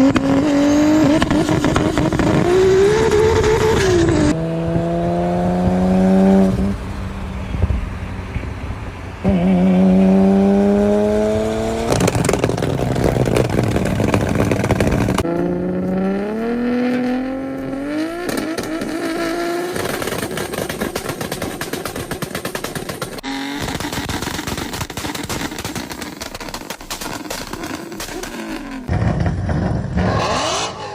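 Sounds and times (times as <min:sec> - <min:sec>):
car engines revving: 0:00.0 - 0:30.9
exhaust pops and bangs: 0:01.0 - 0:04.3, 0:11.6 - 0:15.3, 0:18.1 - 0:30.0.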